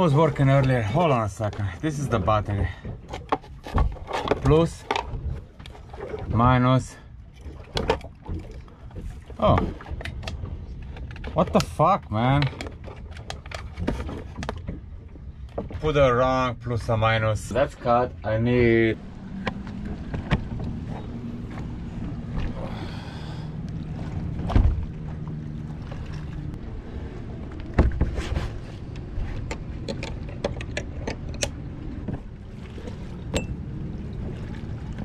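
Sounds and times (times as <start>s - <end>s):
steady low hum: 14.8s - 35.0s
clicks and knocks of tools: 28.9s - 31.6s.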